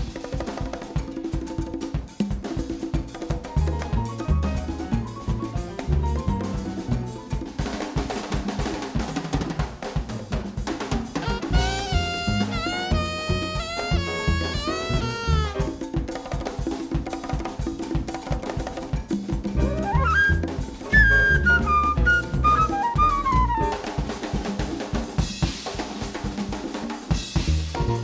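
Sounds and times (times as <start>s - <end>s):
drum kit: 0.0s - 28.0s
bass: 3.4s - 7.5s, 11.1s - 15.8s, 19.4s - 23.8s, 27.1s - 28.0s
horn melody: 11.2s - 15.9s, 19.7s - 23.9s.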